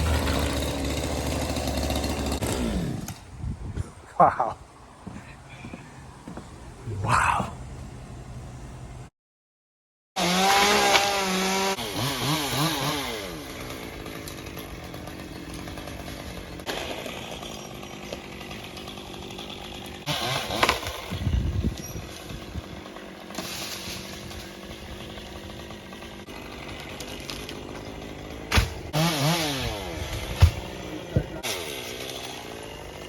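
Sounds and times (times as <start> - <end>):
chainsaw engine revving: 0.0 - 3.2, 10.2 - 33.0.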